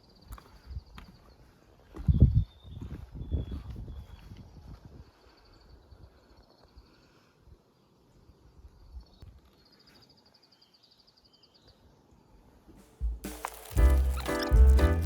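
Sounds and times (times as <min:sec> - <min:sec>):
faint low thumps: 0:12.7 - 0:15.0
music: 0:12.8 - 0:15.0
high rapid chirping trill: 0:13.0 - 0:15.0.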